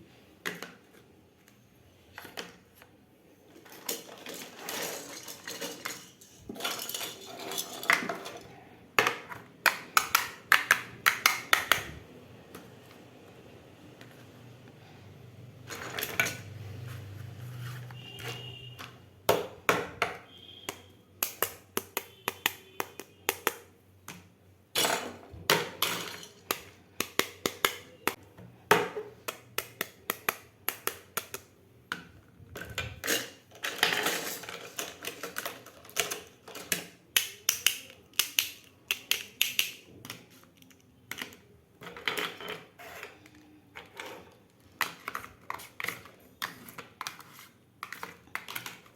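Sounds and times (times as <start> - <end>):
plastic toy pieces clicking: 33.0 - 42.4.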